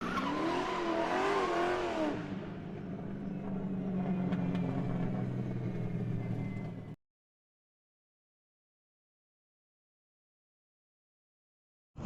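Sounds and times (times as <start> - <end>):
wavering pitched car sound: 0.0 - 7.0.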